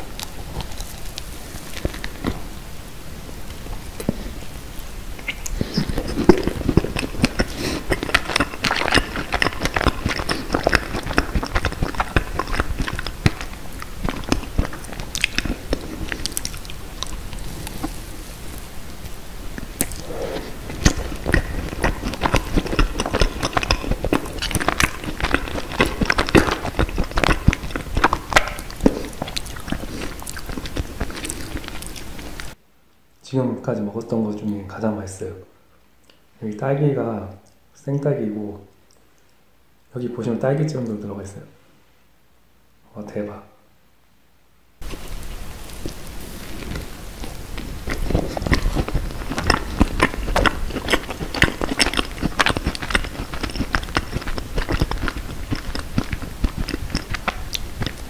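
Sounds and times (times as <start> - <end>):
biting and chewing with crackles: 0.0 - 32.6, 44.8 - 58.0.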